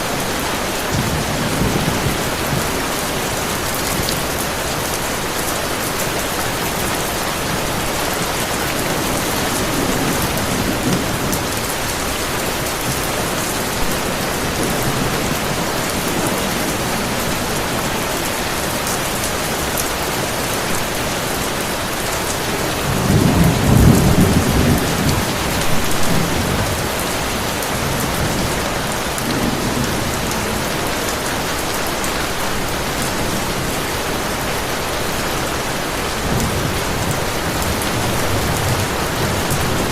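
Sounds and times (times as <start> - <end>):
heavy rain: 0.0 - 39.9
thunder rumbling: 21.8 - 39.9.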